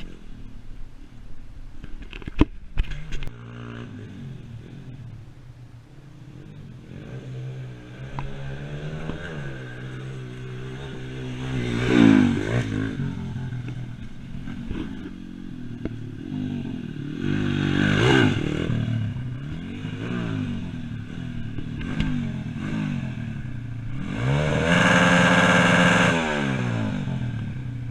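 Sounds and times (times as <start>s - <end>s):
pit bike engines revving: 6.0s - 27.9s.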